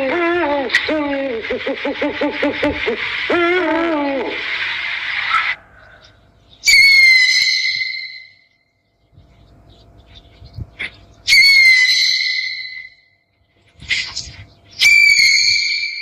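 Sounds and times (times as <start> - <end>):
owl whistled calls: 5.2 - 8.5, 11.2 - 13.1, 13.9 - 16.0.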